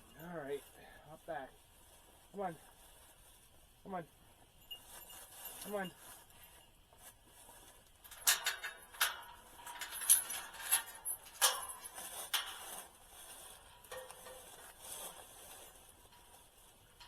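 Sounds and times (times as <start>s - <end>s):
sharp metallic clinks: 4.5s - 6.8s, 8.0s - 17.0s.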